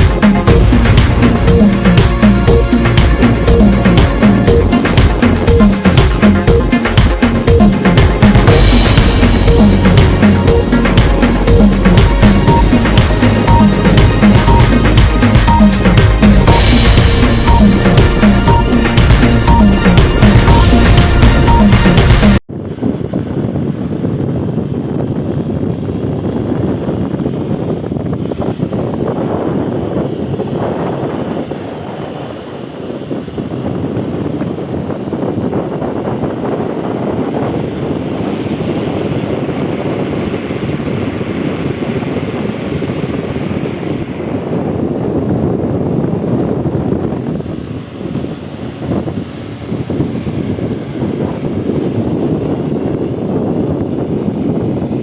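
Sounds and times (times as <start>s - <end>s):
drone propellers buzzing: 0.0s - 22.3s
wind on microphone: 22.5s - 55.0s.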